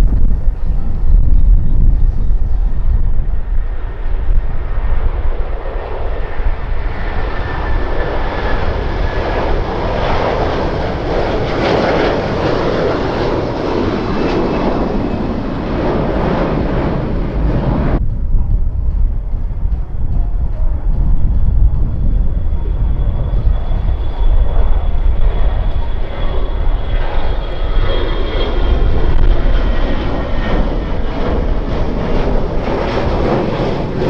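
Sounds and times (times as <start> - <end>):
jet airliner engine roar: 0.0 - 34.0
turbine whine falling in pitch: 0.0 - 34.0
wind rumble on microphone: 0.0 - 34.0.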